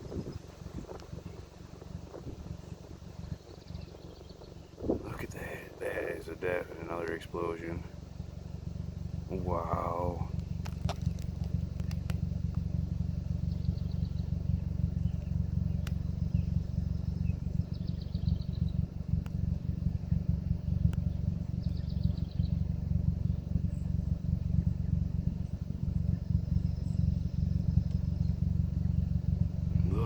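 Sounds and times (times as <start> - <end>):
wind buffeting microphone: 0.0 - 5.6.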